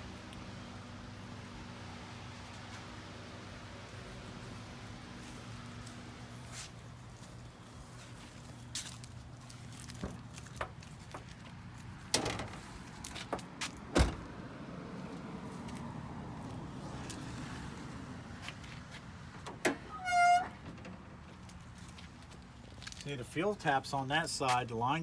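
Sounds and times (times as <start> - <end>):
brief high squeak: 19.8 - 20.6.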